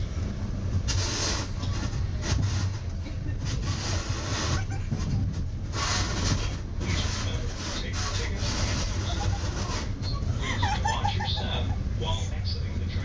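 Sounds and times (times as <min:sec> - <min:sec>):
train rumble inside cab: 0:00.0 - 0:13.0.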